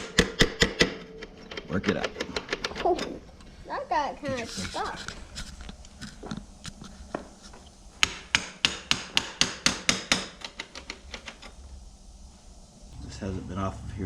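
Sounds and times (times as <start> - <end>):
small hammer tapping metal: 8.0 - 11.5.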